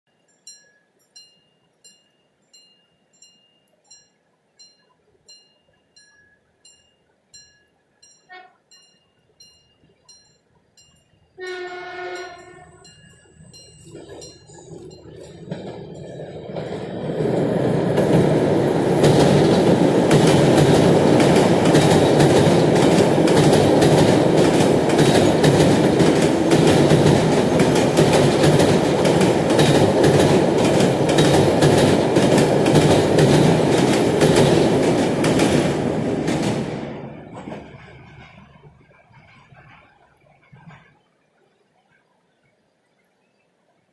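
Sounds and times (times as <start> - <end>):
train rumbling over bridge: 7.3 - 41.0
train horn blasts: 8.2 - 8.8, 11.4 - 13.0
wheels clattering: 11.6 - 41.0.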